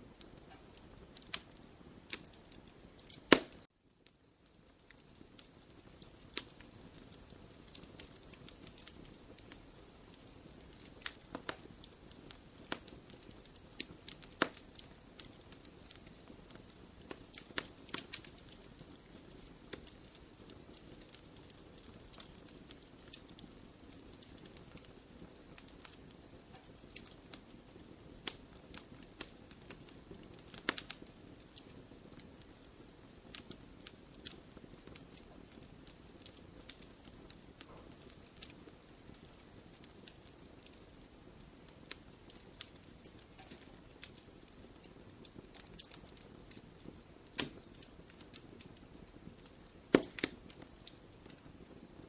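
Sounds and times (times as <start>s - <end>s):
wood fire crackling and popping: 0.0s - 52.0s
fire hissing: 0.2s - 3.6s, 41.9s - 52.0s.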